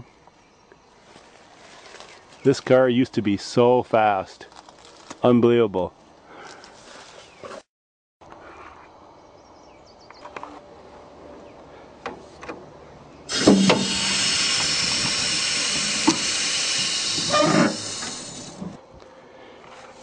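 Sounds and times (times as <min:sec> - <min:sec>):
loud steady hiss: 0:13.3 - 0:18.8.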